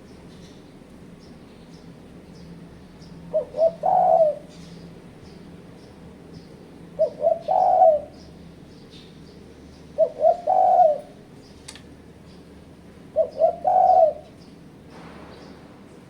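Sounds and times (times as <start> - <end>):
dove cooing: 3.3 - 4.8, 6.9 - 8.2, 10.0 - 11.2, 13.1 - 14.4.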